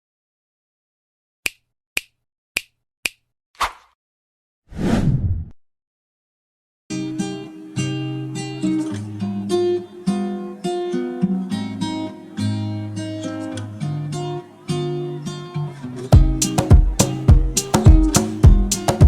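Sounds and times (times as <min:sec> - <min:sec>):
acoustic guitar music: 0:06.9 - 0:19.0.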